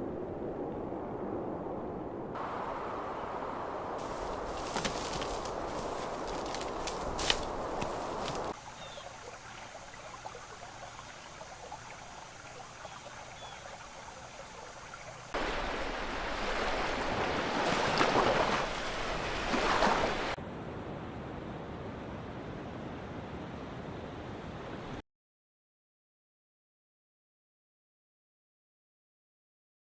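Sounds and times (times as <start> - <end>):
rushing water: 2.3 - 20.4
faint hiss: 2.4 - 17.0
small bird chirps: 8.7 - 9.2.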